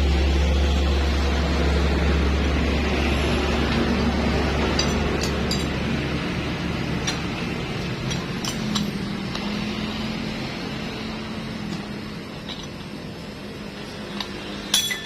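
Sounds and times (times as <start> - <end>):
steady background hum: 0.0 - 15.0
metallic clinks of tools: 8.1 - 9.4, 14.1 - 15.0.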